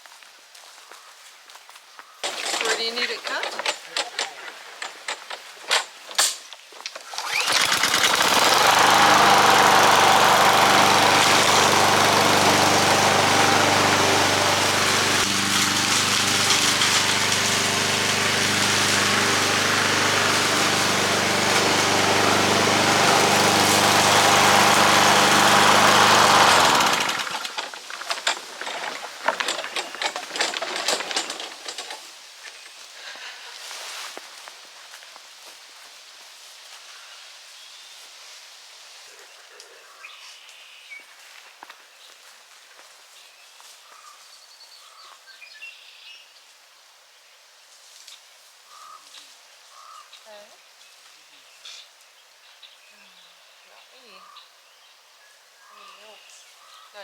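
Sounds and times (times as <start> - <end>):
lawnmower engine cutting grass: 2.2 - 34.0.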